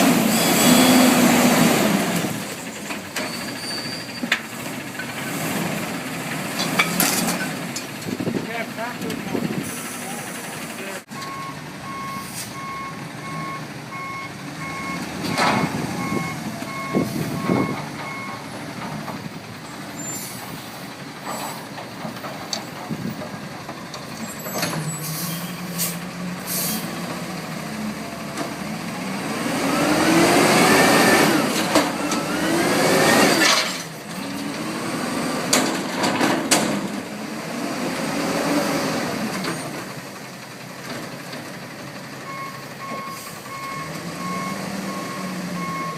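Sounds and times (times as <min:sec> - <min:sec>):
diesel engine revving: 0:00.0 - 0:45.9
reversing alarm beeps: 0:11.2 - 0:18.4, 0:42.3 - 0:45.9.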